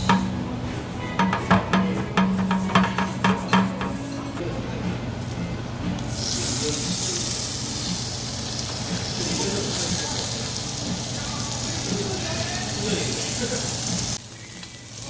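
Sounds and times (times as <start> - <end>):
faint background voices: 0.0 - 15.0
meat sizzling on a grill: 6.0 - 15.0.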